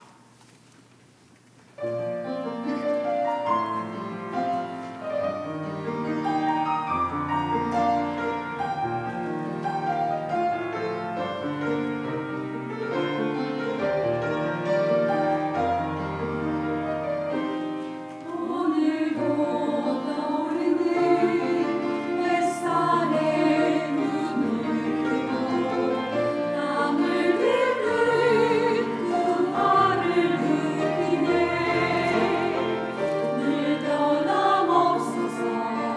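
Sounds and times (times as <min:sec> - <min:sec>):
piano chords: 0:01.8 - 0:35.9
choir singing: 0:13.0 - 0:35.9.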